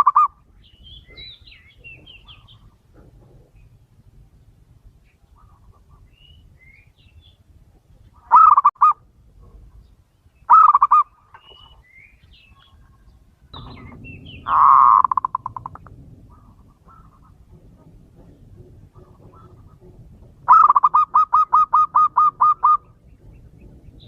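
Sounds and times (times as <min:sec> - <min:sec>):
small birds chirping: 0:00.0 - 0:17.6
dove cooing: 0:08.2 - 0:09.6, 0:10.5 - 0:11.7, 0:13.6 - 0:23.7.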